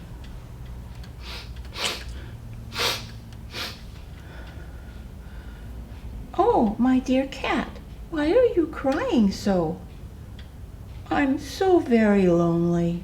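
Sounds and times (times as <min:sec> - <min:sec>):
person sniffling: 0:01.2 - 0:04.0.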